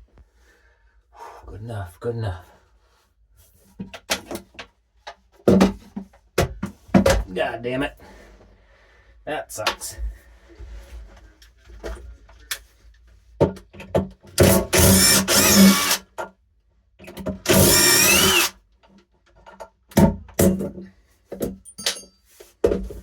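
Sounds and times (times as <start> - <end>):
power drill motor whine: 14.7 - 16.0, 17.5 - 18.5.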